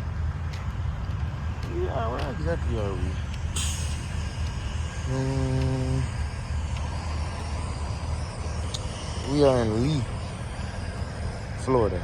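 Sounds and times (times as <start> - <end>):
vehicle engines rumbling: 0.0 - 12.0
hum-like tone: 2.8 - 12.0
short hiss: 3.5 - 4.5.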